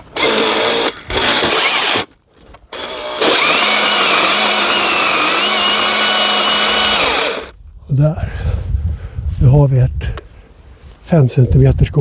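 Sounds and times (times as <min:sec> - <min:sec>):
chainsaw cutting wood: 0:00.0 - 0:07.6.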